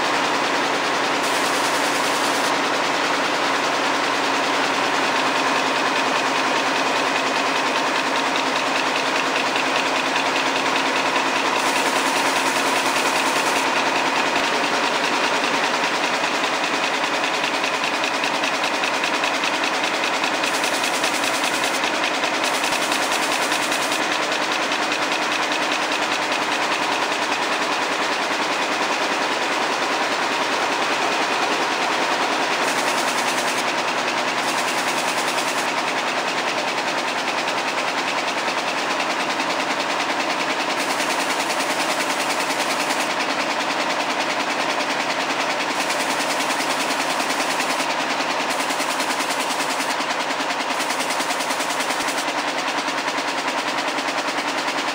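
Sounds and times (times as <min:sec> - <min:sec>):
weaving looms clattering: 0:01.0 - 0:02.7, 0:07.2 - 0:14.4, 0:16.0 - 0:26.6, 0:32.5 - 0:54.9.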